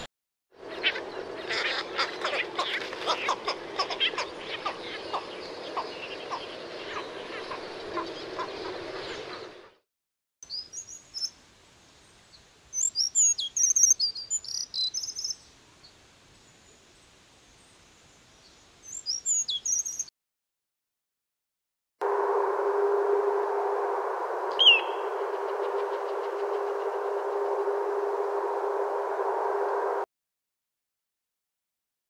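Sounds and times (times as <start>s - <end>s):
wetland calls: 0.6s - 9.6s
high-pitched bird chirps: 24.5s - 25.1s.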